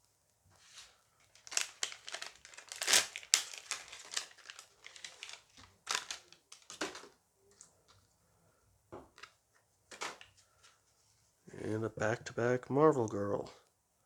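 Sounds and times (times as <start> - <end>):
foil pack crinkling and tearing: 0.8 - 7.1.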